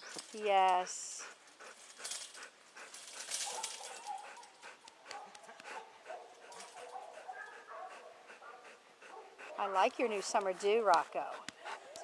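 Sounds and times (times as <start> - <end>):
soft rustling: 0.0 - 7.1.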